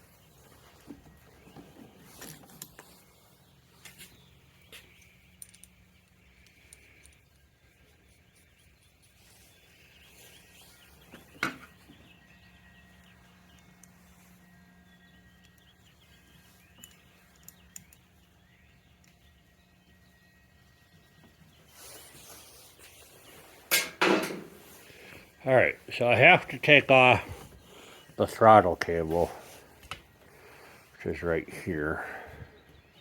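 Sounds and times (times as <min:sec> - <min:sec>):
small parts and tools clicking: 0:04.7 - 0:09.2, 0:13.0 - 0:14.0, 0:16.7 - 0:18.1.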